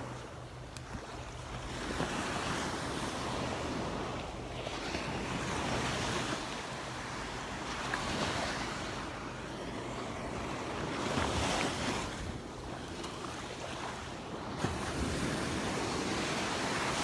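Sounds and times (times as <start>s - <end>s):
small waves washing onto beach: 0.0s - 17.0s.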